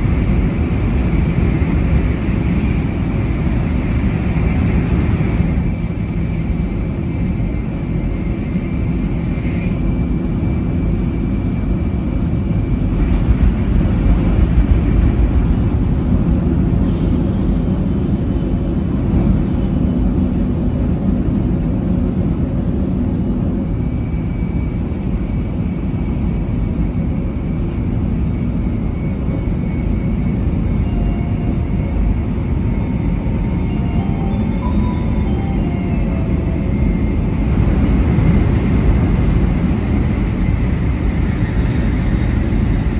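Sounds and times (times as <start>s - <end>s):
train rumbling at speed: 0.0s - 42.9s
high whine: 28.3s - 42.9s.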